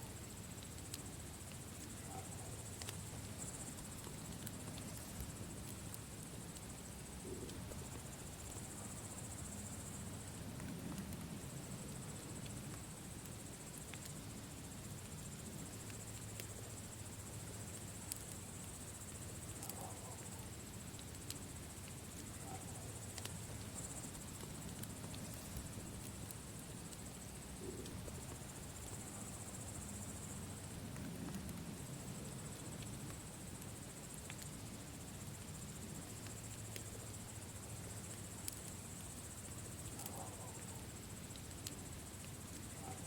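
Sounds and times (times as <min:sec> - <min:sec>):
campfire crackling and popping: 0:00.2 - 0:42.7.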